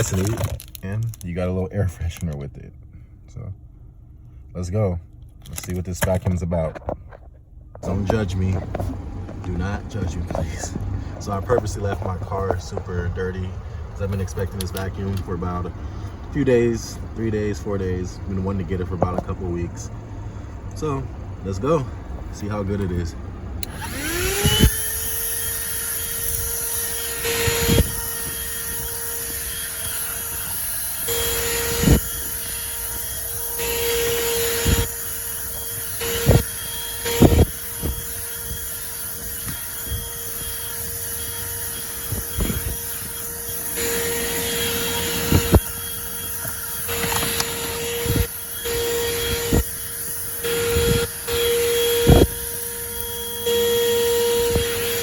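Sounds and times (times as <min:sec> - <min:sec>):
handheld vacuum motor whine: 0:00.0 - 0:00.8, 0:07.8 - 0:15.7, 0:23.6 - 0:55.0
sharp clicks and knocks: 0:44.5 - 0:48.3.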